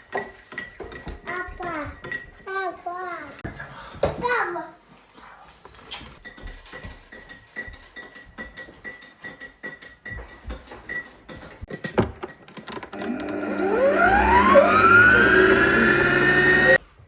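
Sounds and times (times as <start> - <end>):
small electric motor whine: 13.0 - 16.8.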